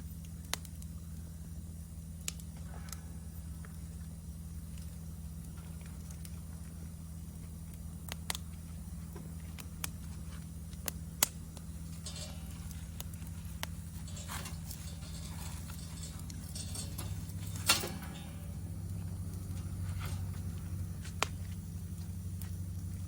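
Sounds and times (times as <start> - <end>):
steady low rumble: 0.0 - 23.0
wood fire crackling and popping: 0.0 - 23.0.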